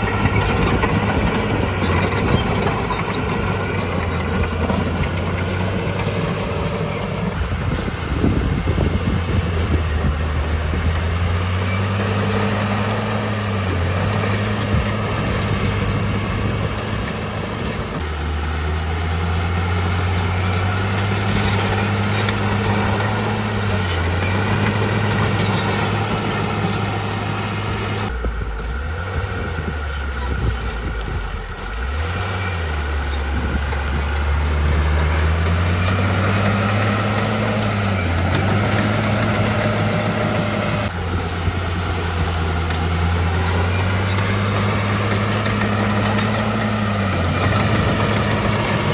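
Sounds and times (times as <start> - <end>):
heavy diesel engine under load: 0.0 - 48.9.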